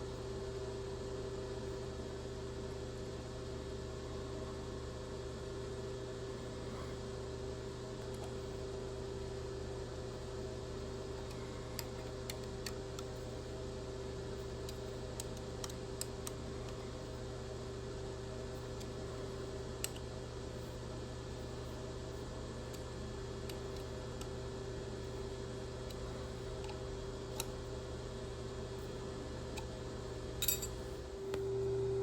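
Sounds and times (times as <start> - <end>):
machine shop hum: 10.8 - 32.0
light metal clicks and taps: 30.4 - 30.8.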